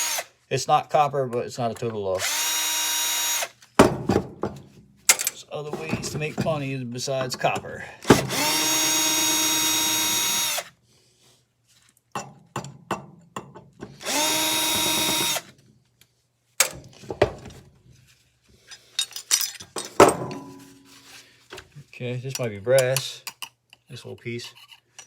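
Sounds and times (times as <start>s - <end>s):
power drill spinning: 0.0s - 0.3s, 2.2s - 3.6s, 8.0s - 10.7s, 13.9s - 15.6s
metal parts clinking: 18.7s - 20.0s.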